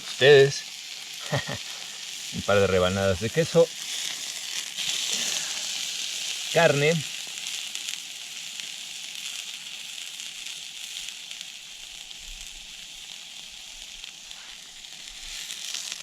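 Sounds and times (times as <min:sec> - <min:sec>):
meat sizzling in a pan: 0:00.0 - 0:16.0.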